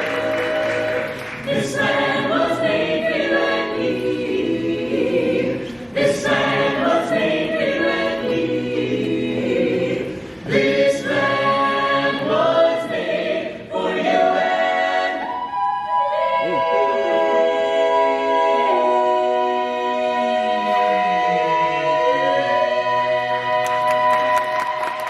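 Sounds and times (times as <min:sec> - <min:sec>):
a cappella choir singing: 0:00.0 - 0:25.0.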